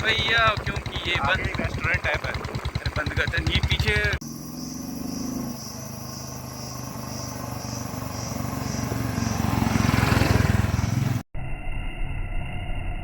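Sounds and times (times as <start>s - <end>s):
motorcycle pulling away: 0.0s - 11.2s
engine and road noise: 0.0s - 11.3s.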